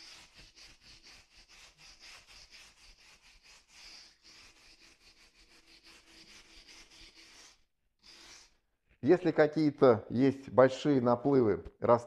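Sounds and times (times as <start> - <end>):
wire brush scrubbing brick: 0.0 - 8.5.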